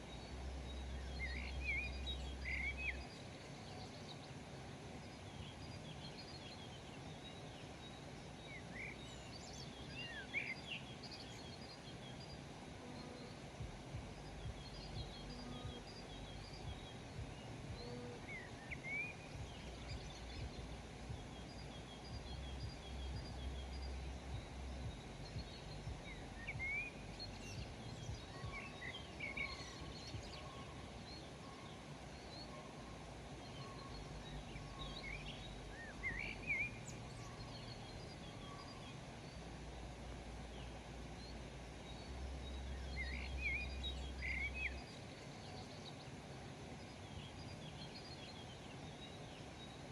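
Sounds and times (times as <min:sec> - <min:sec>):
wild birds chirping: 0:00.0 - 0:49.9
low rumble: 0:13.6 - 0:18.3, 0:19.3 - 0:28.3.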